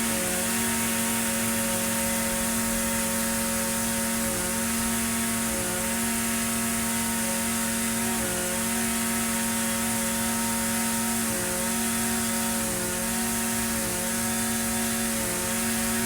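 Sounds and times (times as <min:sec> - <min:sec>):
string trimmer engine running: 0:00.0 - 0:16.0.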